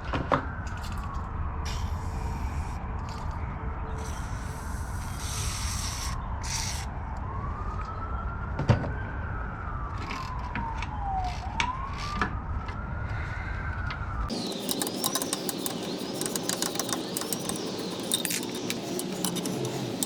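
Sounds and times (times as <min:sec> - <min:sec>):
emergency siren wailing: 0:00.0 - 0:02.0, 0:06.2 - 0:19.4
sharp metallic clicks: 0:14.3 - 0:20.0.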